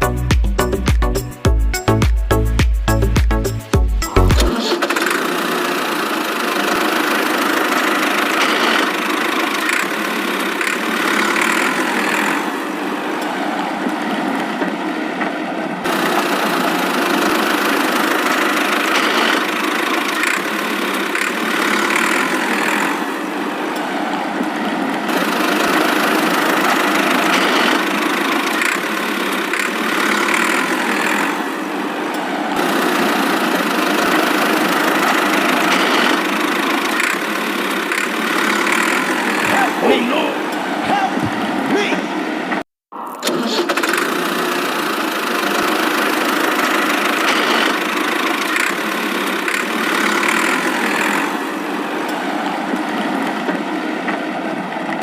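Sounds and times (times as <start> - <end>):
engine idling with knocking: 4.9 - 12.4, 15.9 - 22.9, 25.1 - 31.4, 32.6 - 39.7, 43.8 - 51.4.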